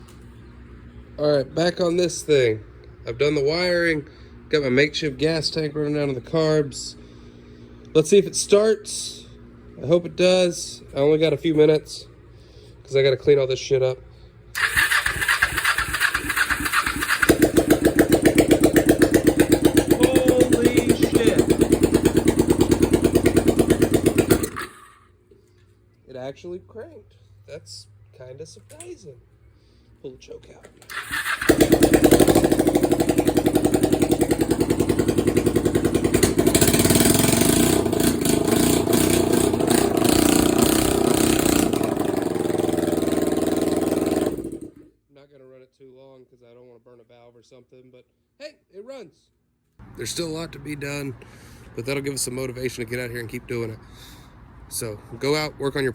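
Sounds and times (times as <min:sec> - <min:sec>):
motorcycle electric starter cranking: 0:14.6 - 0:25.0, 0:30.8 - 0:44.8
motorcycle engine running: 0:14.6 - 0:25.0, 0:30.9 - 0:44.9.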